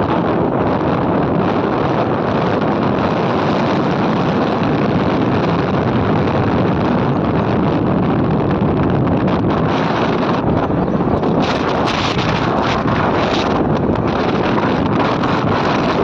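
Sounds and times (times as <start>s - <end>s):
motorcycle road and engine noise: 0.0s - 16.0s
wind buffeting microphone: 0.0s - 16.0s.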